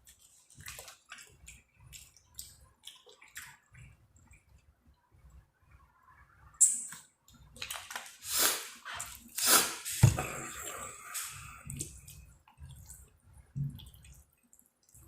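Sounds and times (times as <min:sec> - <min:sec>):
wet slurping and chewing: 0:00.0 - 0:04.6, 0:07.6 - 0:13.2.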